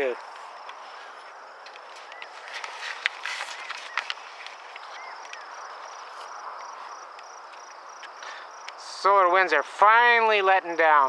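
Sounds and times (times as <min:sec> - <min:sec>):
crickets trilling: 0:00.0 - 0:11.0
sharp clicks and rustles: 0:00.2 - 0:08.8
bird chirps: 0:00.8 - 0:08.6.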